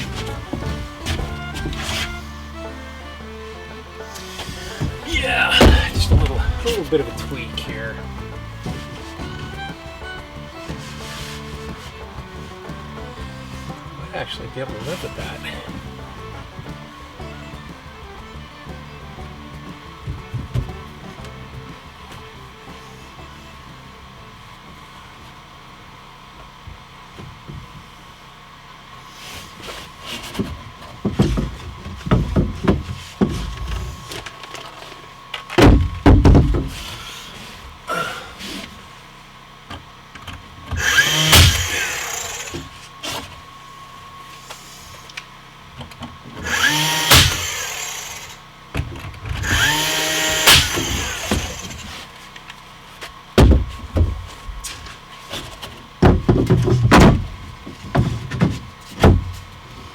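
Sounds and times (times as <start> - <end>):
power drill spinning: 0.0 - 23.5, 40.7 - 45.3, 46.3 - 48.5, 49.3 - 52.4
knocks of wood being handled: 0.0 - 28.0, 29.2 - 38.9, 39.6 - 59.9.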